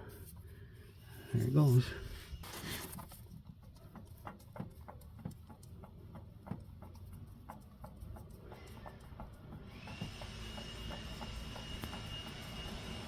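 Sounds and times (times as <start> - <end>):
oil dripping: 0.0 - 13.0.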